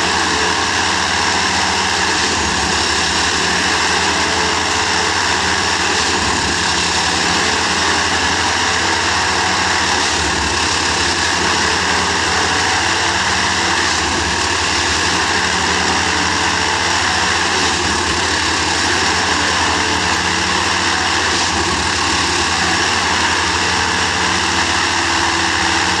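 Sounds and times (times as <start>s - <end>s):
track tamping machine running: 0.0s - 26.0s.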